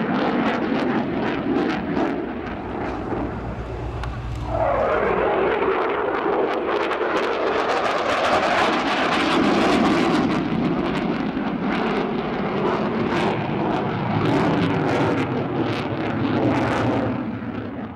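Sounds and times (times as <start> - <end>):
aircraft engine flying past: 2.2 - 6.6.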